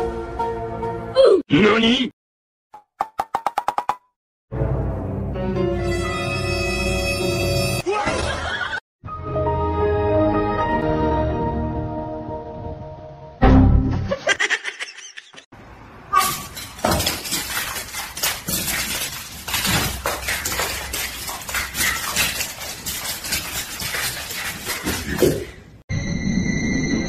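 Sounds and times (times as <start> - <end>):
dog and kitten scrabbling on stone: 16.2 - 25.6.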